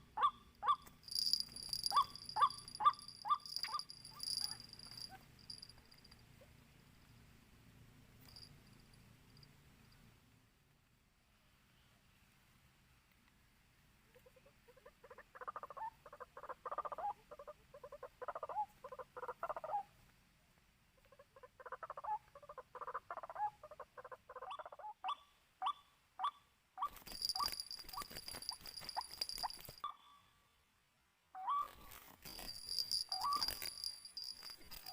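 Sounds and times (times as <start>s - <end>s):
bird croaking calls: 1.8s - 5.1s.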